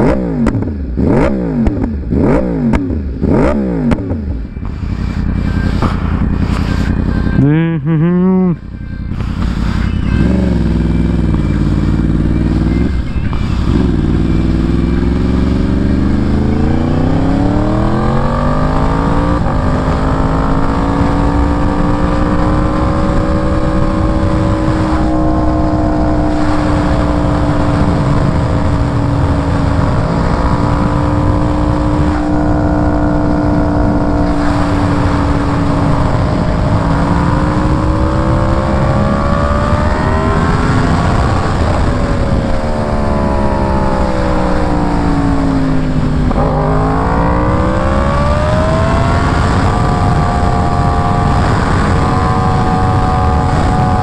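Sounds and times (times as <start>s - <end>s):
motorcycle engine accelerating: 0.0s - 54.0s
wind noise on microphone: 9.0s - 54.0s.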